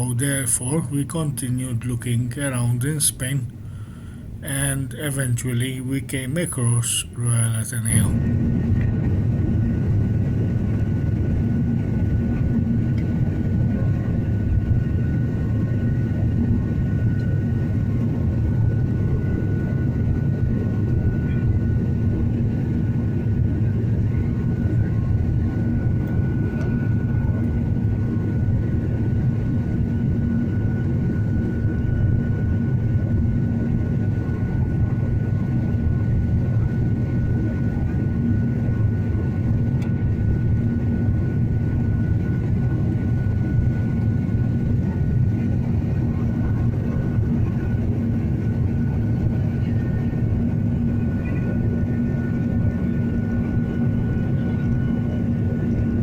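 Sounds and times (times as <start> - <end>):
faint high whine: 0.0 - 8.3
low vehicle drone: 0.0 - 19.2.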